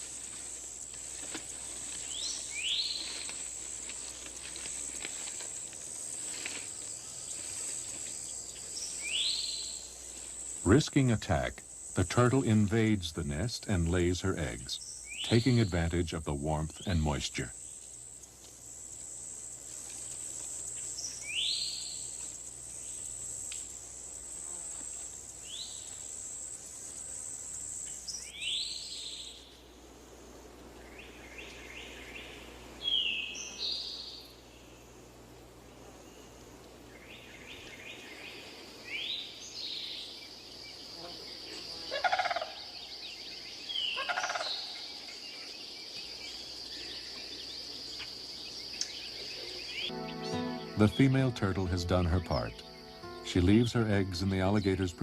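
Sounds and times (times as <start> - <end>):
sweeping bird calls: 2.0 - 3.3, 8.5 - 9.9, 46.2 - 55.0
low drone: 49.9 - 55.0.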